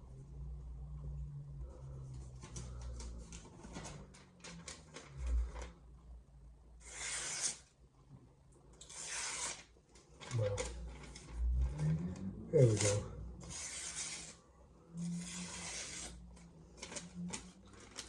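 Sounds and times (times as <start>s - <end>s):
paper rustling: 2.2s - 5.8s, 15.2s - 18.0s
knife slicing paper: 6.8s - 7.7s, 8.8s - 9.7s, 12.6s - 14.4s, 15.0s - 16.2s.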